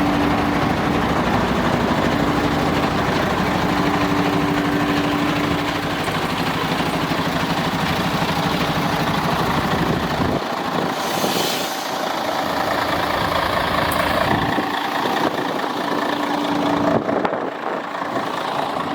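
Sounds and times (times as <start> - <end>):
truck diesel engine idling: 0.0 - 18.9
brief hiss: 10.9 - 12.1.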